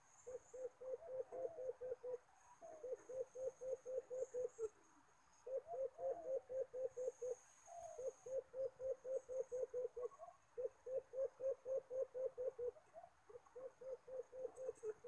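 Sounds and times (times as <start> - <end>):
bird hooting calls: 0.0 - 4.8, 5.4 - 15.0.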